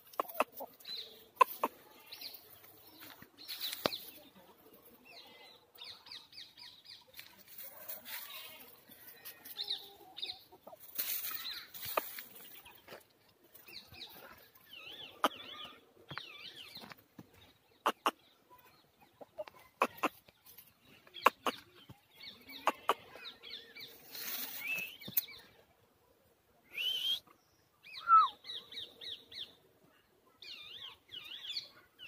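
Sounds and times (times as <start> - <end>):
small birds chirping: 0.0 - 25.6.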